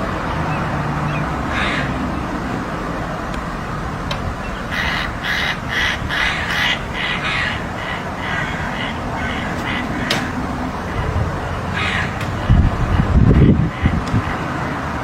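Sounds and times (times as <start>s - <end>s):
crows cawing: 1.4s - 2.2s, 4.4s - 12.5s.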